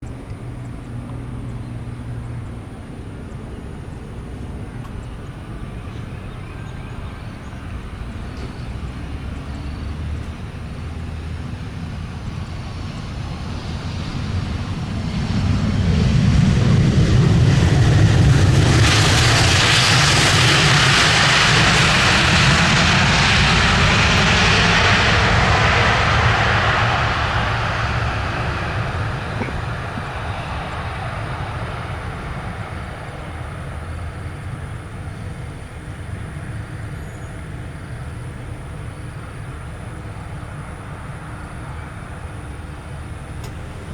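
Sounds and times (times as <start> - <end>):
jet engines roaring: 0.0 - 43.9
rushing roar: 13.5 - 36.7.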